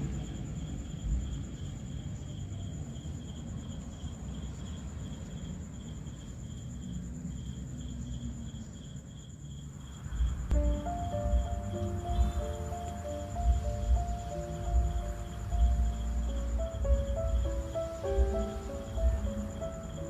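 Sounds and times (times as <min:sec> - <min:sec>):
pulsed cricket chirping: 0:00.0 - 0:20.0
high-pitched insect trill: 0:00.2 - 0:20.0
low rumble: 0:10.4 - 0:20.0.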